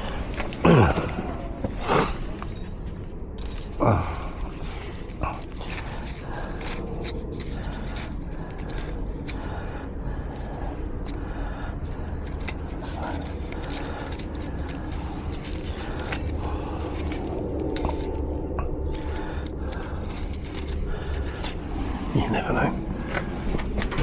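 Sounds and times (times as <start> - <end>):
low rumble: 0.0 - 24.0
tools clicking in lock: 12.2 - 21.6.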